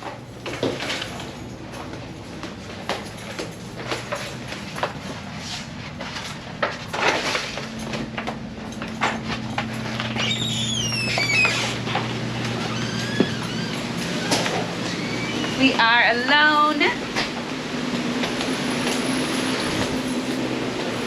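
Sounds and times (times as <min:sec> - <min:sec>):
steady low hum: 0:00.0 - 0:21.0
high squeak: 0:09.9 - 0:11.9, 0:12.6 - 0:15.8.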